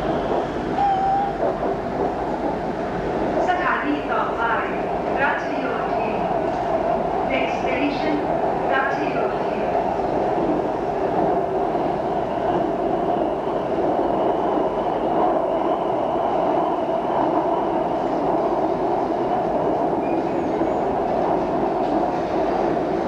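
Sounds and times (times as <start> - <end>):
train running rumble: 0.0 - 23.0.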